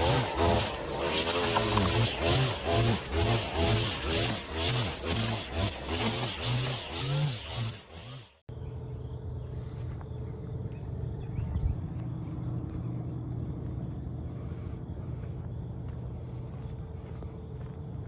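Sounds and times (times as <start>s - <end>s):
low hum: 8.5s - 18.0s.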